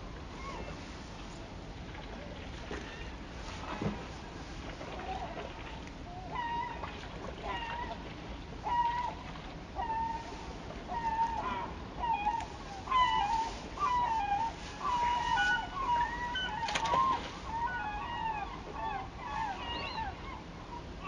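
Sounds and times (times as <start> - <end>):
bird calling: 5.0 - 21.0.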